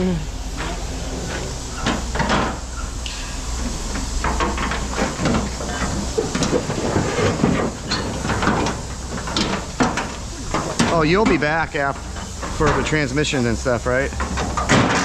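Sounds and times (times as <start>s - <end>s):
hiss: 0.0s - 15.0s
low machine hum: 0.0s - 15.0s
scrap metal clattering: 0.5s - 13.6s, 14.2s - 15.0s.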